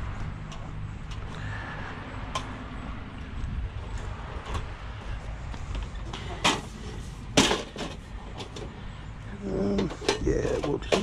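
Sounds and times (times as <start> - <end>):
scrap clicking and knocking: 9.7 - 11.0.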